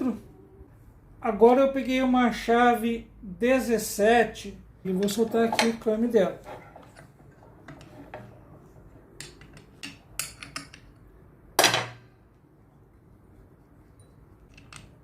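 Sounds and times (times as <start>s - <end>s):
wrench clinking on metal parts: 9.2s - 11.0s.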